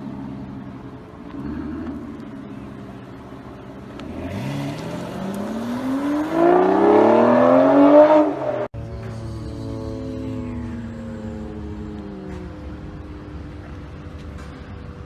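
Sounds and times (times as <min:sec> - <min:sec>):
sports car engine accelerating: 0:00.0 - 0:15.0
quieter engine drone: 0:08.3 - 0:15.0.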